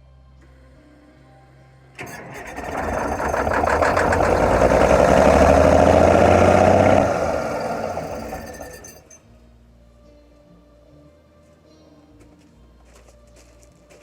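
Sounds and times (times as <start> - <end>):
heavy truck engine starting: 2.0 - 9.2.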